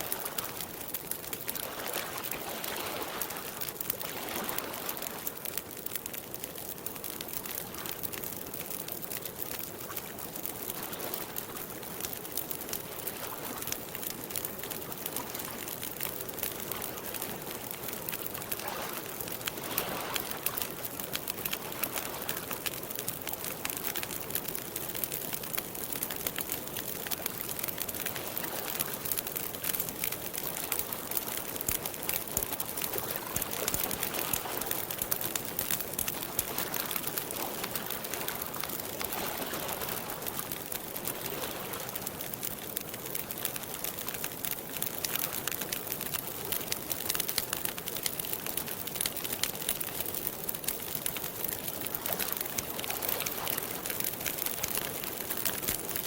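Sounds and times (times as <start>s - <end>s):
lake water lapping: 0.0s - 5.4s, 18.4s - 22.4s, 30.4s - 42.0s
campfire crackling: 0.0s - 56.0s.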